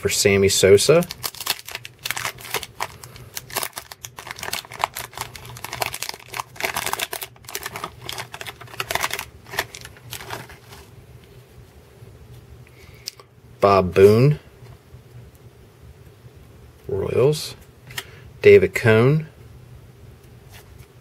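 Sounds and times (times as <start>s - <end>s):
wrapper crinkling: 1.0s - 10.9s.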